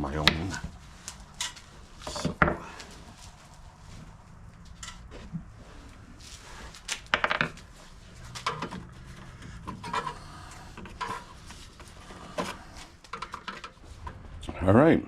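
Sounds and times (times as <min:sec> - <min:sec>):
tools clinking and knocking: 0:04.6 - 0:05.3, 0:07.1 - 0:13.9.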